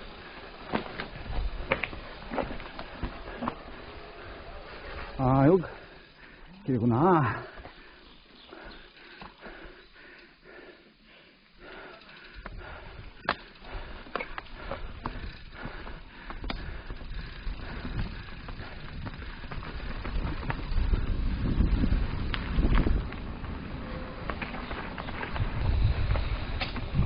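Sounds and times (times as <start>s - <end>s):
bike tyres rumbling on dirt: 0.0s - 9.8s, 11.6s - 27.0s
bike clacking over roots: 0.1s - 5.5s, 11.8s - 27.0s
wind on microphone: 16.6s - 27.0s.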